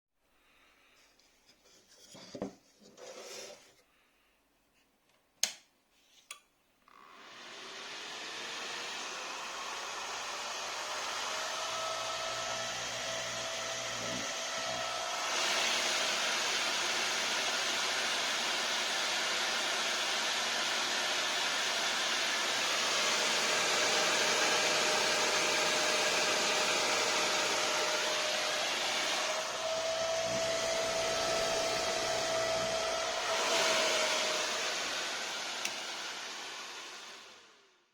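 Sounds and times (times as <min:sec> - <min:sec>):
high-speed fan running: 0:22.5 - 0:36.6.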